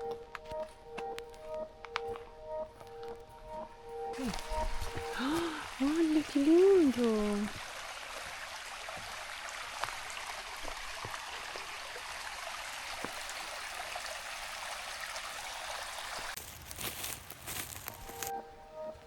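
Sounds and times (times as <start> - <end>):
stream flowing: 1.8 - 16.4.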